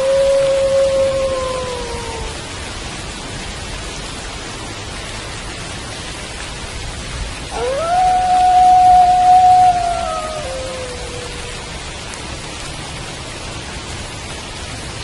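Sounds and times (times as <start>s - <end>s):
wolf howling: 0.0s - 2.4s, 7.5s - 11.8s
steady rain falling: 0.0s - 15.0s.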